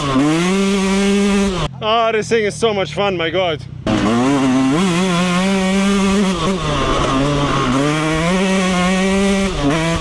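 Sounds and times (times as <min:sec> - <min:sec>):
dirt bike engine revving: 0:00.0 - 0:01.7, 0:03.8 - 0:10.0.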